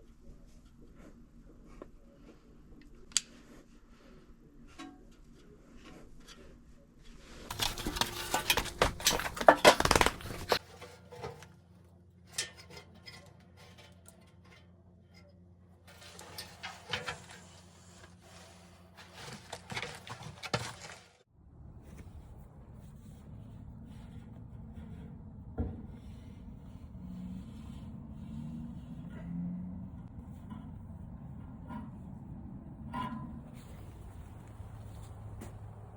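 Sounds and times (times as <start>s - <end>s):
metal parts clinking and clattering: 7.5s - 11.4s.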